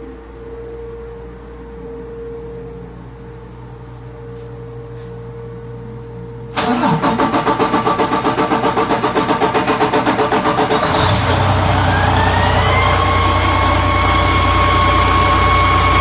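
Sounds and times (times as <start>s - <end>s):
low hum: 0.0s - 16.0s
diesel engine starter cranking: 6.5s - 16.0s
rhythmic engine chugging: 6.6s - 16.0s.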